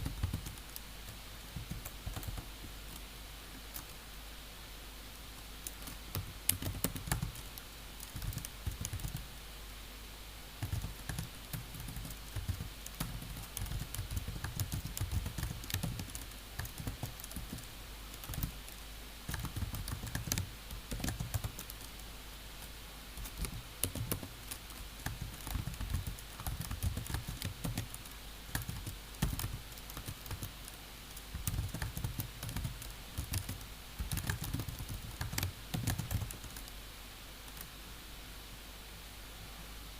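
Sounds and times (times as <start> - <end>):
computer keyboard typing: 0.0 - 0.8, 1.6 - 2.5, 5.6 - 9.3, 10.6 - 22.1, 23.2 - 36.8
faint low hum: 0.0 - 39.9.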